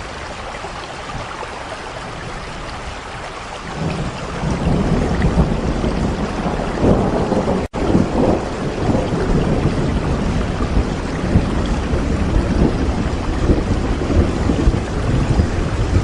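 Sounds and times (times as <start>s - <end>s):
steady rainfall: 0.0s - 16.0s.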